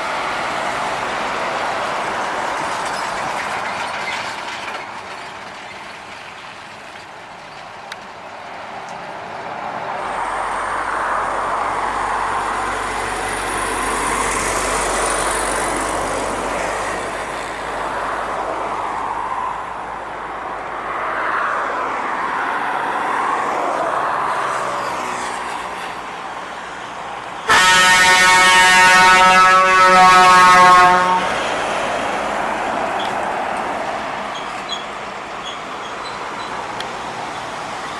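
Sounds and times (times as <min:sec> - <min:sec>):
heavy trucks passing: 0:00.0 - 0:37.9
truck air horn blaring: 0:10.0 - 0:17.6, 0:27.5 - 0:31.8.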